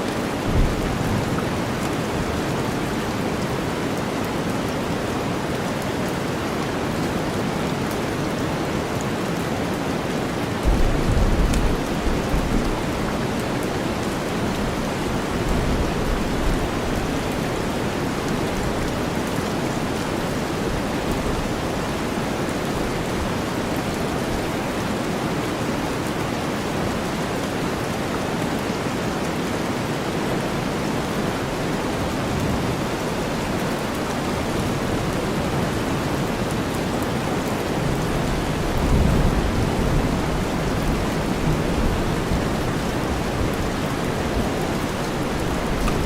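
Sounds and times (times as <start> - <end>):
low rumble of thunder: 0.4 - 1.5, 10.6 - 13.2
heavy rain hiss: 6.6 - 46.0.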